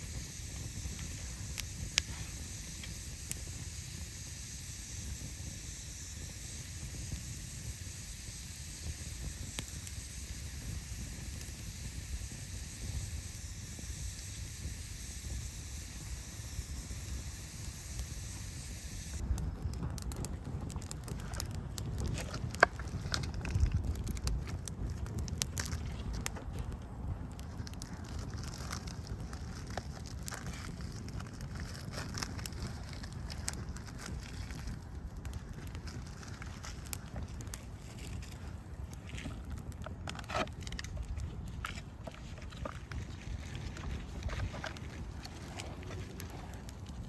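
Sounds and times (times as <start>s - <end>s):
campfire hissing: 0.0s - 47.0s
fire crackling and popping: 0.0s - 47.0s.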